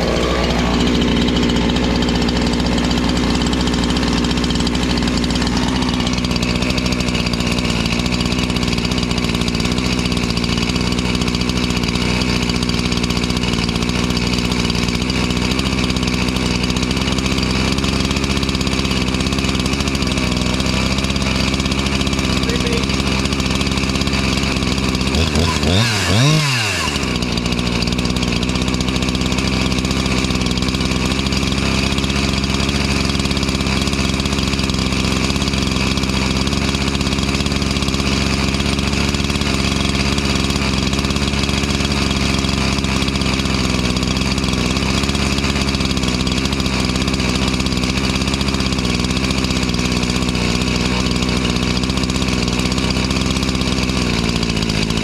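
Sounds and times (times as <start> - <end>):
chainsaw engine revving and idling: 0.0 - 55.0.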